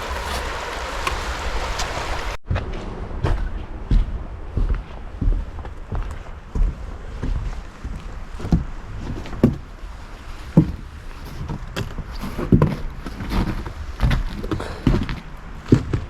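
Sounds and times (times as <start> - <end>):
low rumble: 0.0 - 11.0
footsteps walking: 0.0 - 16.0.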